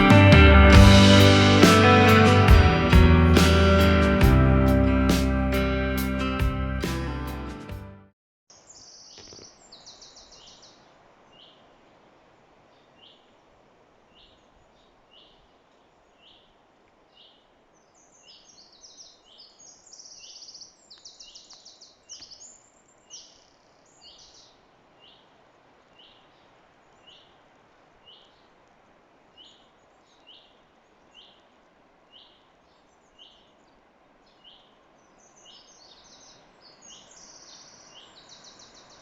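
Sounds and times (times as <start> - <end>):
guitar music: 0.0 - 8.1
birds trilling song: 8.6 - 11.6, 17.1 - 25.3, 32.1 - 39.0.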